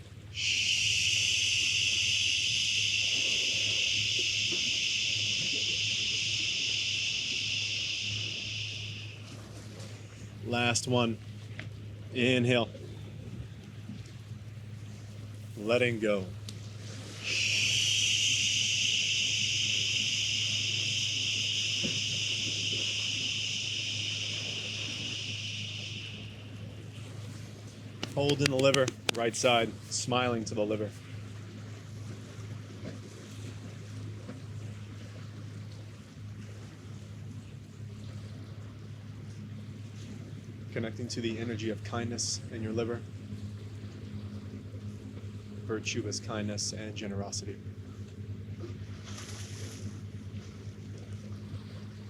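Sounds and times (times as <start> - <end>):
faint low hum: 0.0 - 52.0.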